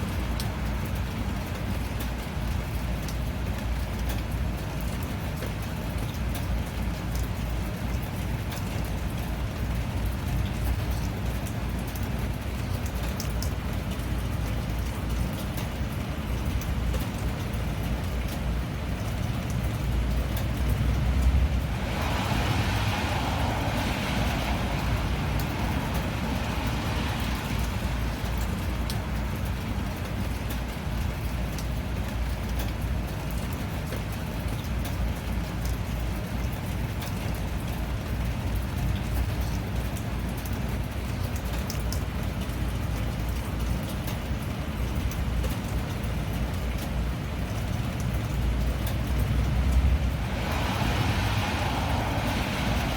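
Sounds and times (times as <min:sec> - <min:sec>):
steady rain falling: 0:00.0 - 0:52.9
hissing wash: 0:21.0 - 0:29.4, 0:49.0 - 0:52.9.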